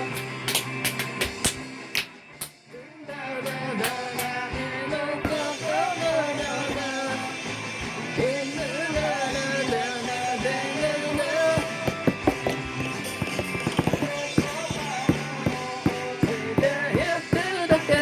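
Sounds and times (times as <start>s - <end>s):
rock band music: 3.3s - 18.0s.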